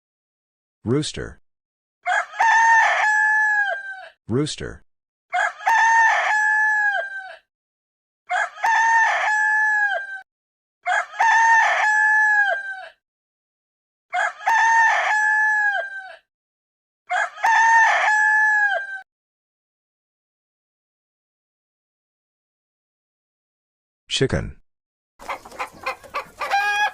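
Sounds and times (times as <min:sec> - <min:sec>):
rooster crowing: 0:02.0 - 0:04.1, 0:05.3 - 0:07.4, 0:08.3 - 0:10.2, 0:10.8 - 0:13.0, 0:14.1 - 0:16.2, 0:17.1 - 0:19.0, 0:25.2 - 0:26.9.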